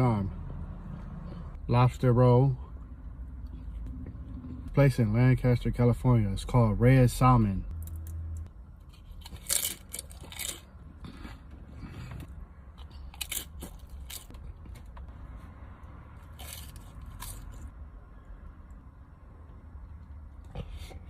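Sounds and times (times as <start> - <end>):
person chewing: 8.9 - 14.4, 16.3 - 17.7
crisp crunching bites: 9.0 - 10.7, 13.1 - 14.3.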